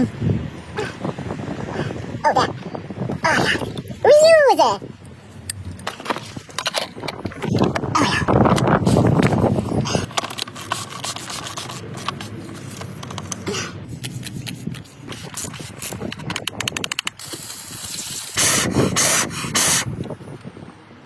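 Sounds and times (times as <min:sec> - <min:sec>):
tools clicking and scraping: 0:05.0 - 0:19.8
loud hissing bursts: 0:17.1 - 0:19.9.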